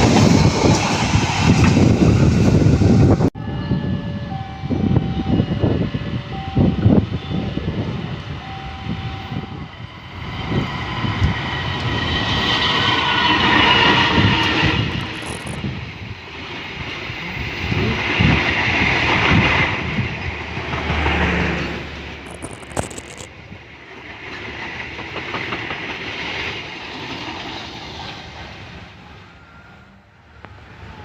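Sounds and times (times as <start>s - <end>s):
train carriages rattling: 14.8s - 15.7s, 22.2s - 23.4s.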